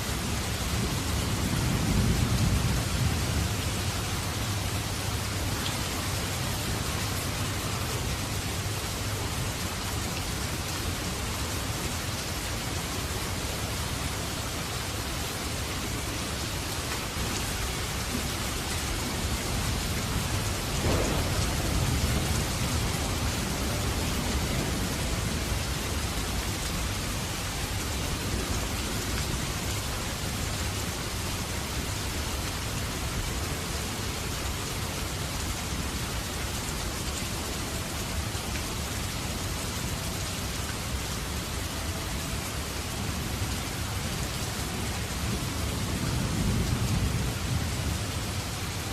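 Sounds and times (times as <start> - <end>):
steady rain falling: 0.0 - 48.9
low rumble: 20.8 - 24.2.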